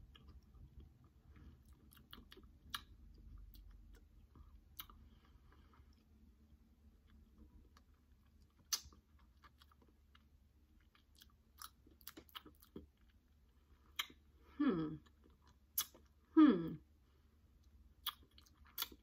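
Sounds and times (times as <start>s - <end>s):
person chewing gummy candy: 0.0s - 16.3s, 17.6s - 19.0s
wet mouth clicks and smacks: 8.6s - 9.0s, 15.8s - 16.1s.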